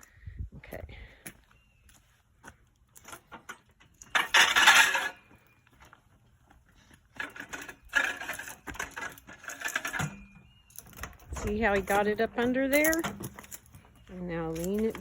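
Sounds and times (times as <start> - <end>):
metal hand truck scraping: 3.1 - 5.3, 7.2 - 13.8
hand truck rattling and knocking: 4.1 - 5.2.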